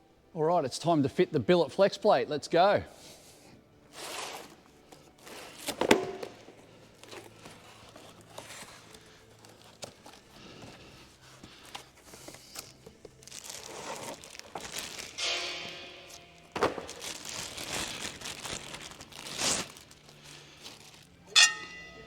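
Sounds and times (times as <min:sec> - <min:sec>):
metal engine parts clinking: 0:21.2 - 0:22.0.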